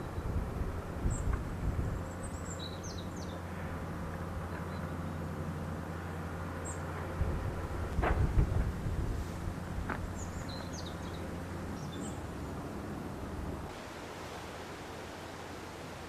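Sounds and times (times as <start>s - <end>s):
wind rumbling on microphone: 0.0s - 4.5s, 7.0s - 13.9s.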